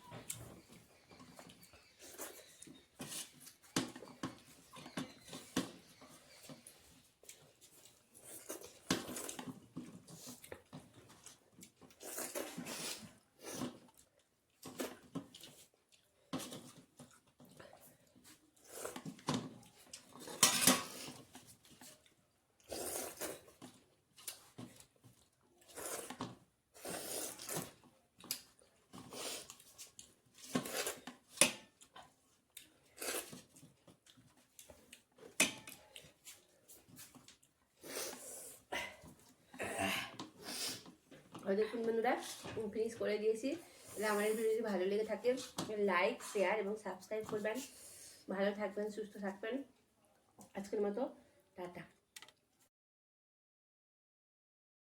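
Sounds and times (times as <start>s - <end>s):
person chewing: 7.2s - 20.4s, 21.0s - 41.0s
cutlery clinking on plate: 20.2s - 21.0s.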